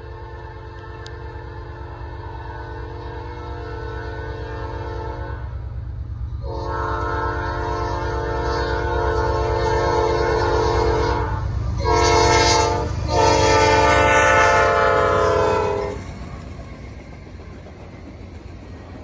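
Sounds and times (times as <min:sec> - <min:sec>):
locomotive air horn blasts: 0:00.0 - 0:05.6, 0:06.4 - 0:16.0
low rumble of train: 0:00.0 - 0:19.0.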